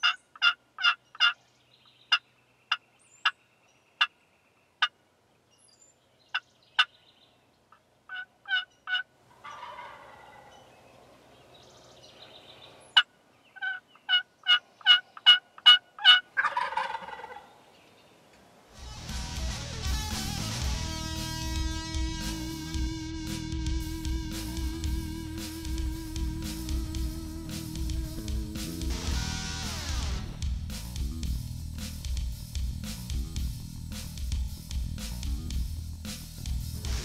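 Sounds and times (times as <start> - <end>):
turkey gobbling: 0.0 - 1.4, 8.1 - 10.7, 13.0 - 17.6
turkey yelping: 0.0 - 1.4, 8.1 - 10.7, 13.0 - 17.6.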